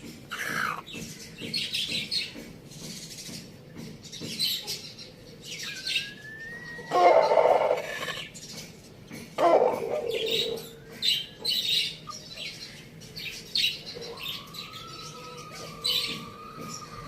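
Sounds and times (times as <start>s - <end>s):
birds chirping: 0.0s - 17.0s
lower bird call: 5.6s - 8.3s, 13.9s - 17.0s.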